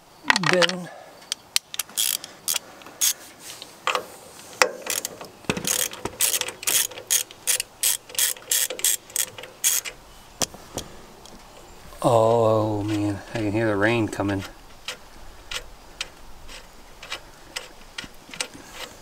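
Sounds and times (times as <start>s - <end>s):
socket ratchet clicking: 1.6s - 3.2s, 4.6s - 10.0s.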